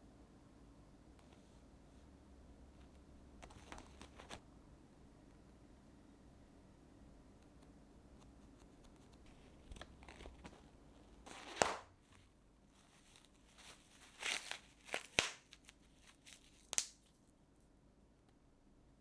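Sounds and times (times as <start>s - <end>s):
crinkling handling noise: 2.8s - 4.4s, 8.5s - 17.3s.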